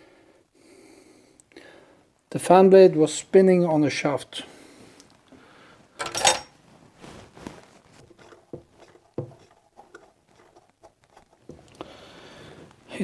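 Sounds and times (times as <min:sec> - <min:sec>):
metal knocks and clicks: 0:06.0 - 0:06.5
metal parts clattering and scraping: 0:06.0 - 0:06.6.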